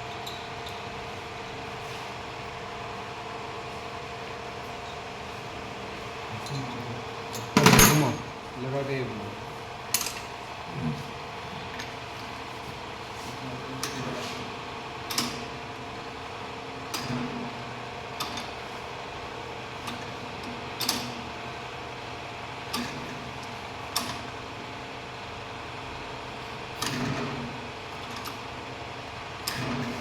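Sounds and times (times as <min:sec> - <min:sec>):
metal tools clinking: 0:07.4 - 0:08.3.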